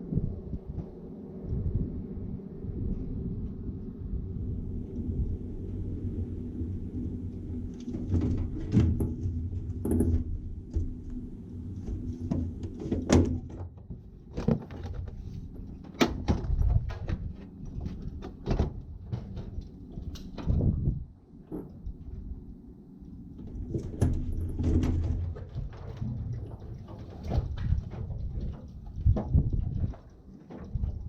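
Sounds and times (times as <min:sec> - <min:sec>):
light aircraft engine: 0:00.0 - 0:31.0
irregular knocks and clunks: 0:23.6 - 0:31.0.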